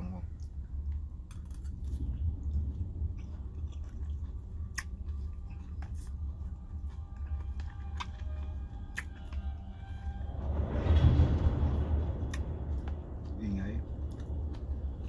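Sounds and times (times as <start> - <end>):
low rumble: 0.0 - 15.0
person chewing salad: 0.4 - 9.5.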